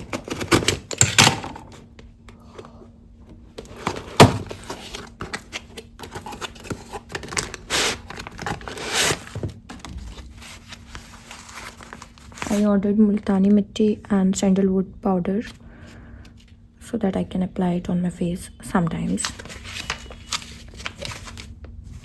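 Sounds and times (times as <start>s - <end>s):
products clicking and knocking: 0.0s - 1.8s
packaging rustling: 3.6s - 12.7s, 19.0s - 21.6s.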